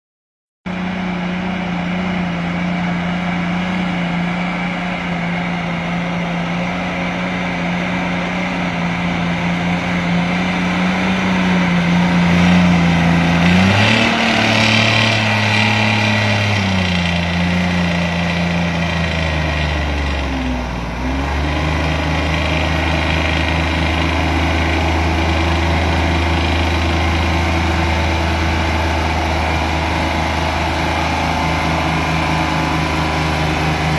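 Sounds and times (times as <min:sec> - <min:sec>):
truck engine running: 0:00.7 - 0:33.9.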